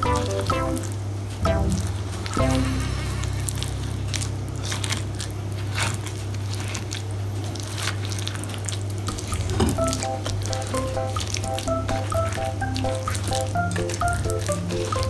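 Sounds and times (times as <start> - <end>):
spoon stirring thick batter: 5.6 - 15.0.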